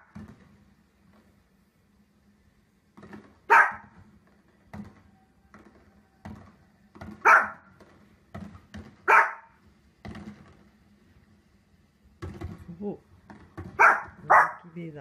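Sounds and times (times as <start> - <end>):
small dog barking: 3.5 - 4.0, 7.2 - 7.7, 9.0 - 9.6, 13.8 - 14.7.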